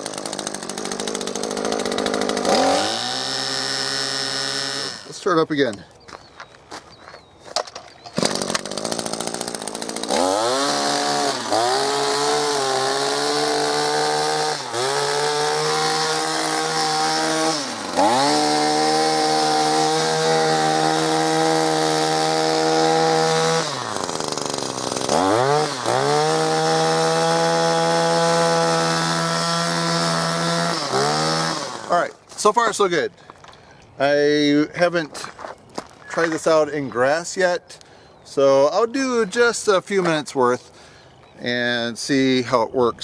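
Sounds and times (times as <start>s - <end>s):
string trimmer engine revving: 0.0s - 5.2s, 8.1s - 32.8s.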